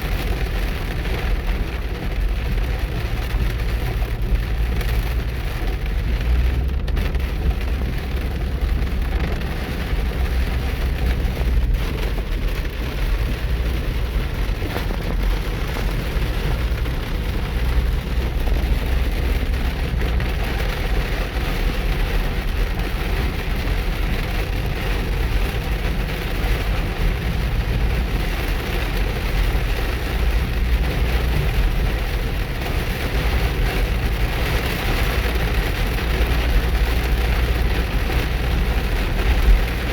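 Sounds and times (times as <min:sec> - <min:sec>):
car low rumble: 0:00.0 - 0:39.9
heavy rain pelting a car: 0:00.0 - 0:39.9.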